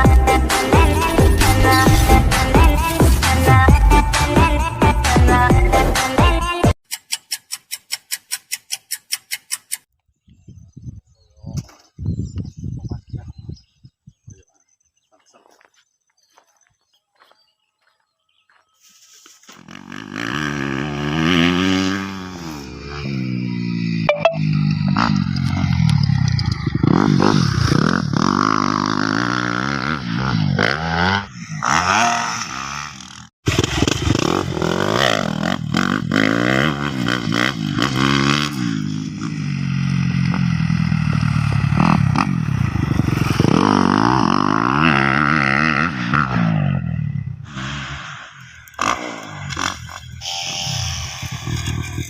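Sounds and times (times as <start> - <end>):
motorcycle engine revving: 0.0 - 4.8, 19.4 - 52.0.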